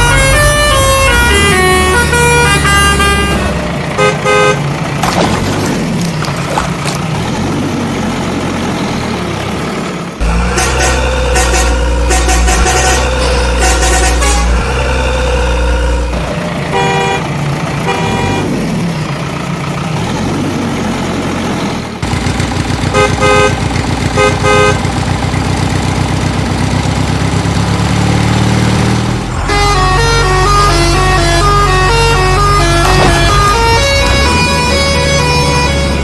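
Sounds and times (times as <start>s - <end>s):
horn honks: 0.0s - 4.8s, 10.2s - 18.7s, 22.8s - 25.0s, 29.4s - 36.0s
vehicle engine revving: 0.0s - 36.0s
musical tune: 29.6s - 36.0s.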